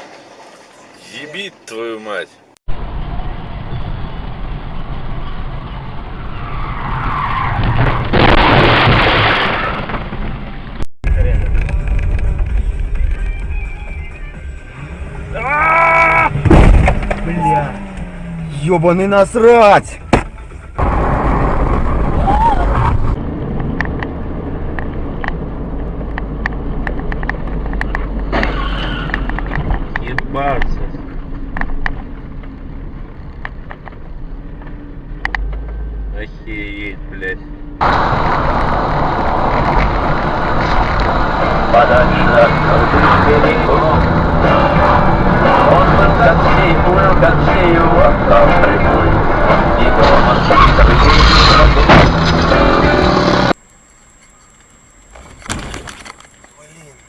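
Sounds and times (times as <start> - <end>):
car engine and road noise: 0.0 - 57.0
loud harsh rush of skidding car: 6.0 - 8.4, 20.8 - 23.2.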